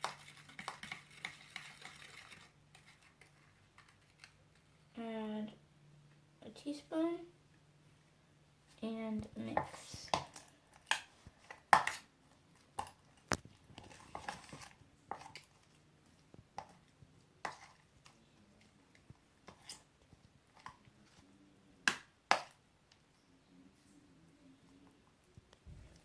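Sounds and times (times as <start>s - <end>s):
utensil stirring slime in bowl: 0.0s - 4.7s, 9.3s - 21.2s.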